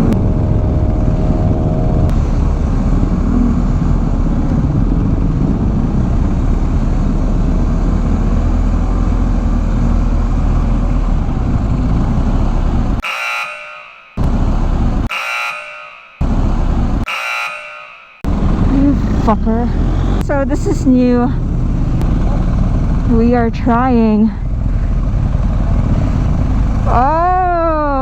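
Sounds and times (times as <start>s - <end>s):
rushing wind: 0.0s - 13.0s, 18.3s - 26.9s
motorcycle engine: 0.0s - 28.0s.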